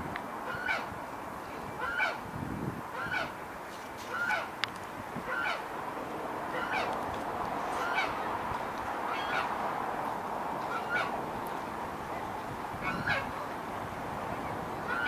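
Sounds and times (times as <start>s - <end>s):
steady background hiss: 0.0s - 15.0s
waterfowl honking: 0.4s - 0.9s, 1.8s - 2.2s, 3.0s - 3.4s, 4.1s - 4.5s, 5.2s - 5.6s, 6.5s - 6.9s, 7.7s - 8.3s, 9.0s - 9.6s, 10.6s - 11.2s, 12.8s - 13.5s.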